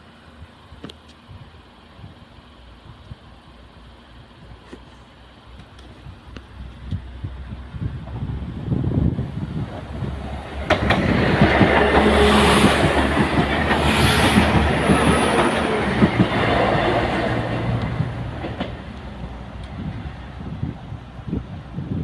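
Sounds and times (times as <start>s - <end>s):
train rumbling past: 1.6s - 22.0s
wheels clicking on rail joints: 8.0s - 21.4s.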